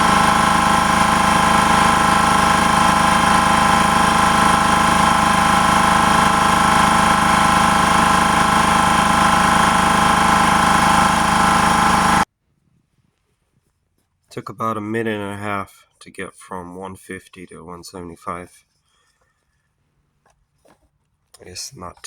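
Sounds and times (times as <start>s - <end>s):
electric air compressor running: 0.0s - 12.3s.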